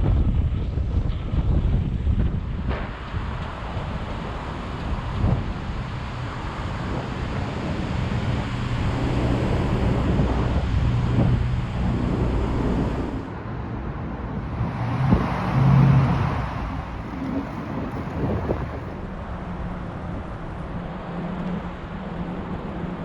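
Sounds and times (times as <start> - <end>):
wind rushing over microphone: 0.0 - 23.0
vehicle passing with low hum: 3.5 - 19.0.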